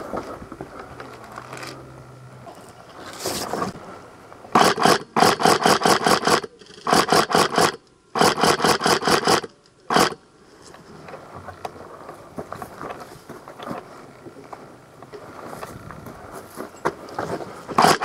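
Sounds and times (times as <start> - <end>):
airsoft rifle firing bursts: 4.6 - 10.2, 17.8 - 18.0.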